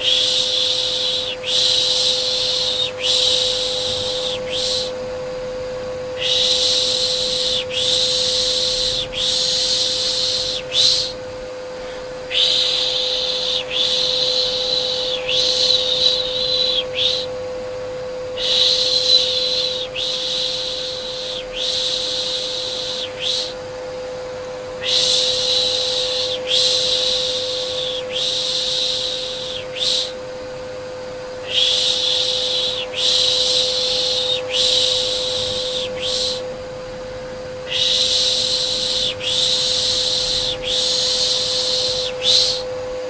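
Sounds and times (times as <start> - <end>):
person shushing: 0.0 - 5.0, 11.8 - 17.3, 18.3 - 23.6, 24.8 - 30.2, 31.4 - 36.5, 37.7 - 42.7
vacuum cleaner humming: 0.0 - 43.0.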